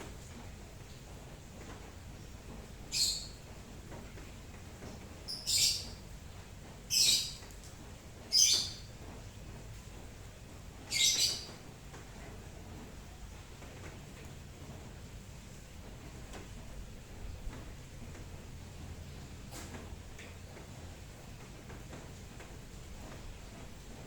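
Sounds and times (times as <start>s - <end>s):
bird chirping: 2.9s - 3.4s, 5.3s - 6.0s, 6.9s - 7.4s, 8.3s - 8.9s, 10.9s - 11.5s.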